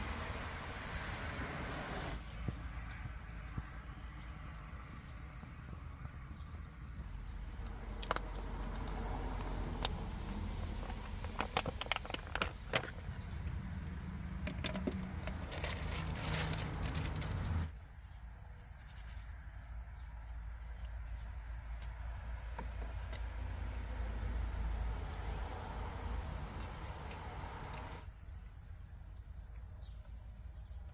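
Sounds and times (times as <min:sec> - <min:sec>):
things being handled: 0:14.4 - 0:17.7
high insect trill: 0:15.5 - 0:30.9.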